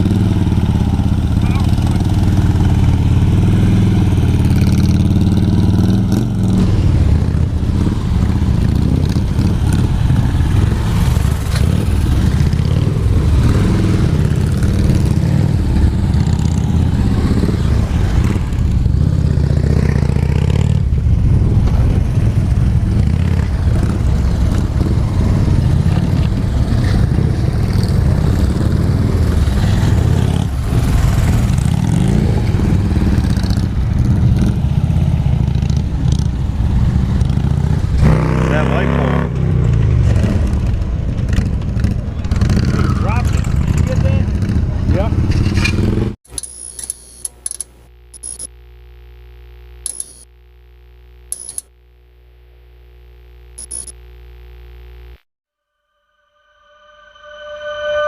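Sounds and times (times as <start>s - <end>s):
motorcycle engine running: 0.0s - 38.8s.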